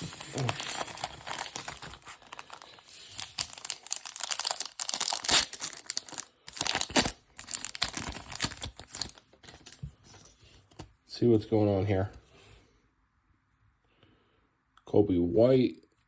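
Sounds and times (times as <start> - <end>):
wrapper crinkling and tearing: 0.0 - 9.8.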